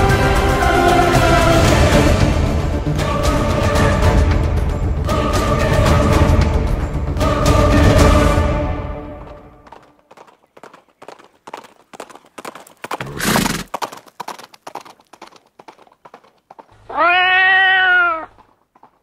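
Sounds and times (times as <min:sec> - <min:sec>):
horse hooves clip-clopping: 0:09.1 - 0:19.0
horse blowing breath: 0:12.9 - 0:13.8
horse neighing: 0:13.0 - 0:13.7, 0:16.8 - 0:18.4.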